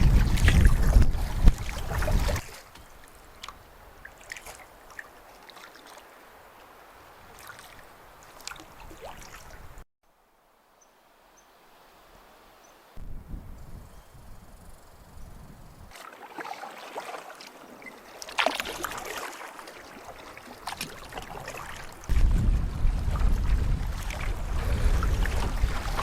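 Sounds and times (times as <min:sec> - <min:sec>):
low wind rumble: 0:00.0 - 0:02.4, 0:13.0 - 0:15.9, 0:22.0 - 0:26.0.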